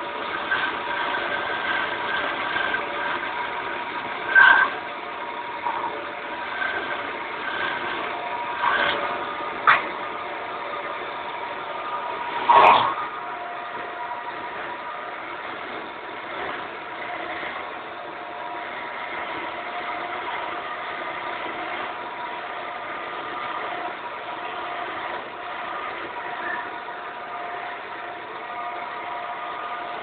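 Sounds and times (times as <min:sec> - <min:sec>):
lathe running with whine: 0:00.0 - 0:30.0.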